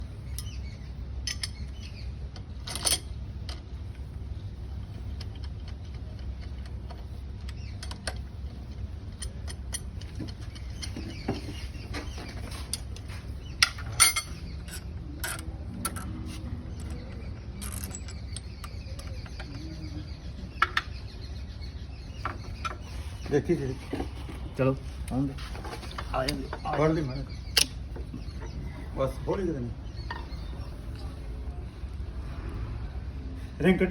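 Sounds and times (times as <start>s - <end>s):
low steady hum: 0.0s - 33.9s
metal tools clicking and clinking: 9.1s - 16.2s, 16.8s - 19.5s.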